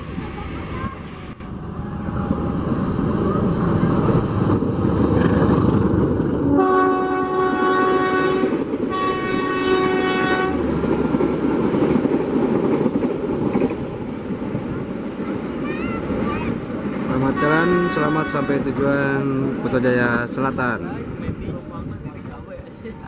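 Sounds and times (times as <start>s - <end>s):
train rumbling past: 0.0s - 23.0s
locomotive horn blasts: 6.5s - 10.6s, 17.3s - 18.7s.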